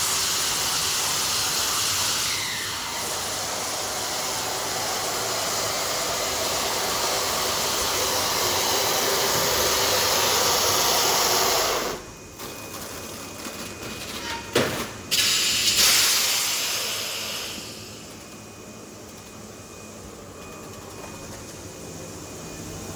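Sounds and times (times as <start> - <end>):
machinery hissing: 0.0 - 12.3, 15.0 - 18.1.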